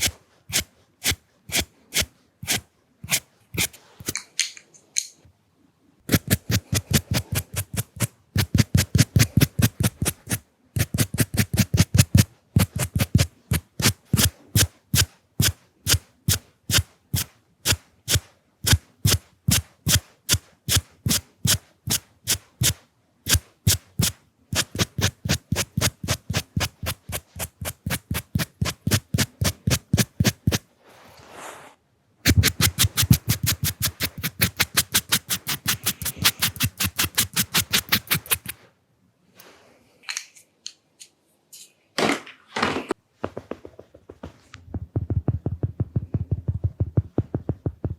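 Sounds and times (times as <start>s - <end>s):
pencils scratching on paper: 0.0s - 4.2s, 6.1s - 17.3s, 22.6s - 30.6s, 32.3s - 38.6s.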